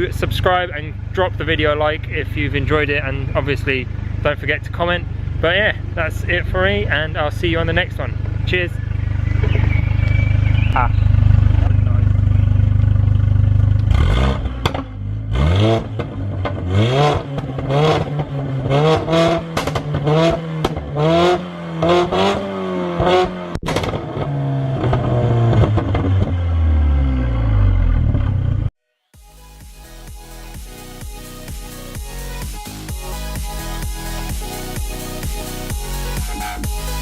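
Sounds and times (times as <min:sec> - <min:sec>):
car engine idling and revving: 0:00.0 - 0:37.0
exhaust pops and crackles: 0:06.4 - 0:15.0, 0:15.7 - 0:21.0, 0:23.0 - 0:26.5.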